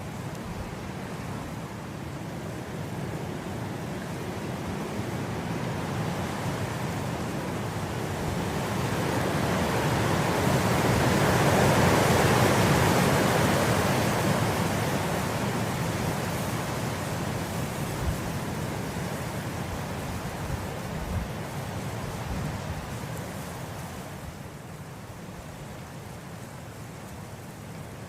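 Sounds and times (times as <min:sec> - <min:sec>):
wind blowing through grass: 0:00.0 - 0:28.0.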